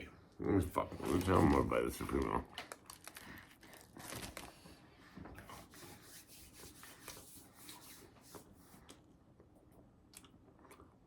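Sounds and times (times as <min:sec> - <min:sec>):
paper wrapper crinkling: 0:01.0 - 0:04.7.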